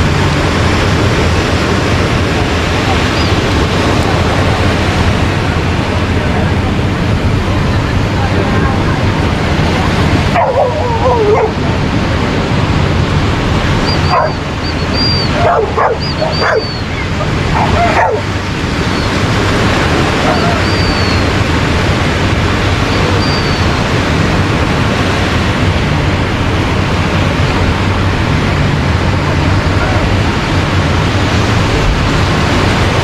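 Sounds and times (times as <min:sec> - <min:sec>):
surf rushing: 0:00.0 - 0:33.0
wind: 0:00.0 - 0:33.0
dog barking and yipping: 0:10.3 - 0:11.6, 0:13.9 - 0:18.3, 0:20.2 - 0:21.2.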